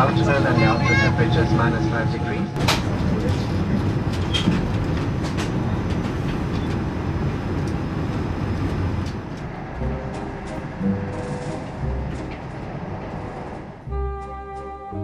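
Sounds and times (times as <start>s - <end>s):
vehicle rumble from inside: 2.6s - 13.9s.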